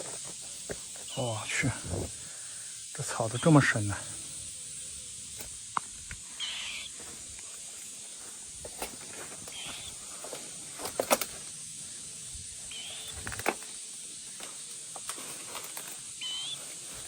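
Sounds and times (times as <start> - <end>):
steady high-pitched hiss: 0.0 - 17.0
bird chirps: 3.1 - 5.3, 6.3 - 7.0, 9.4 - 10.1, 12.6 - 13.4, 16.1 - 16.8.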